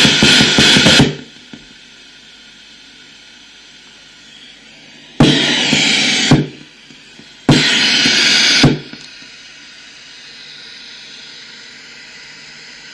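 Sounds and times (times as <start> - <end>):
white noise bursts: 0.0 - 12.9.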